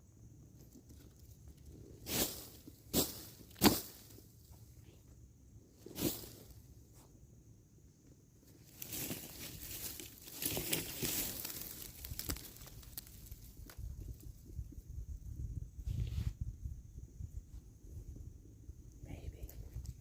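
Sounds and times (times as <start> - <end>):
footsteps crunching through dry leaves: 8.6 - 13.5.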